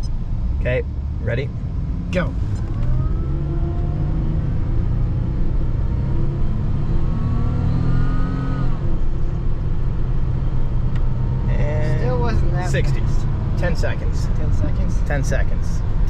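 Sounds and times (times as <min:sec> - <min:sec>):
supercharger whine: 0:00.0 - 0:14.5
car engine accelerating: 0:00.0 - 0:16.0
road noise: 0:00.0 - 0:16.0.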